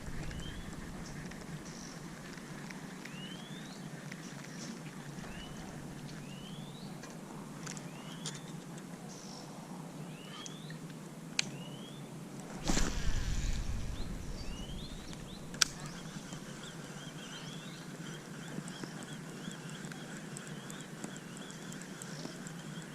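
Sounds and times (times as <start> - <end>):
steady background hiss: 0.0 - 22.9
short rising chirp: 12.6 - 16.7.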